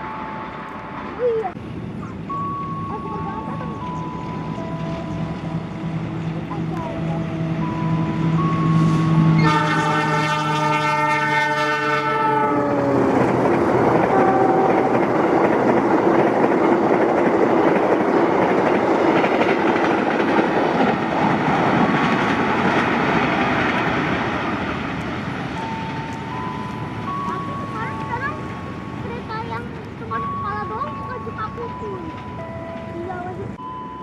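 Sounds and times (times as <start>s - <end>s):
train horn: 8.7s - 13.4s, 14.0s - 15.3s
train wheels clacking on rail: 12.7s - 33.6s.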